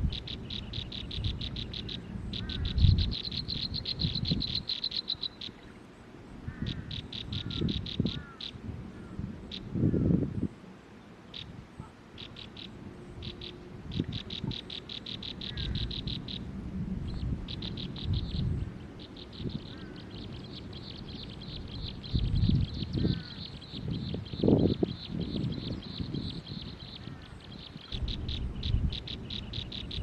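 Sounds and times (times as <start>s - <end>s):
bird chirping rapidly: 0.0s - 5.7s, 6.5s - 8.6s, 12.2s - 16.5s, 17.1s - 30.0s.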